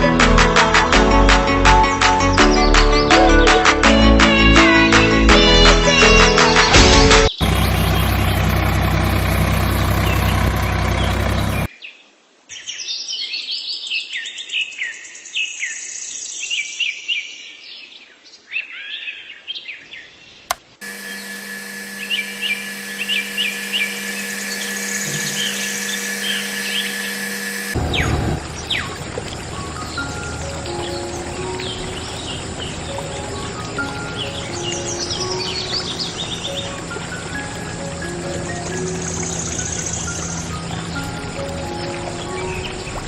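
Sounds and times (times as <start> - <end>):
small birds chirping: 7.4 - 11.7, 21.0 - 43.0
steady hum: 7.4 - 11.7, 20.8 - 43.0
loud steady sound: 20.8 - 43.0.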